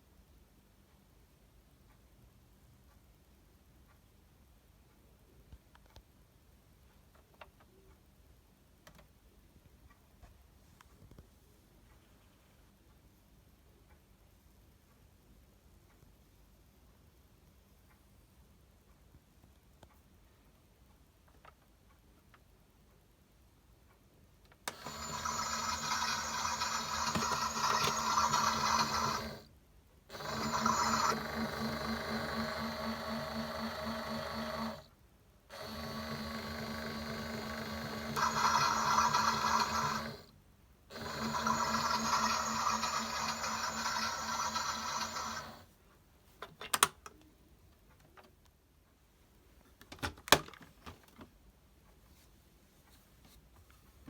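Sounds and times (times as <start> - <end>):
toy washing machine whirring: 24.7 - 29.5, 30.1 - 34.9, 35.5 - 40.3, 40.9 - 45.7.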